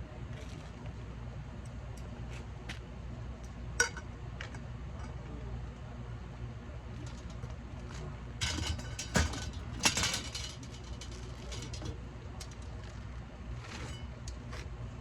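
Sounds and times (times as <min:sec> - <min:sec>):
steady low hum: 0:00.0 - 0:15.0
clattering and scraping: 0:08.4 - 0:14.1.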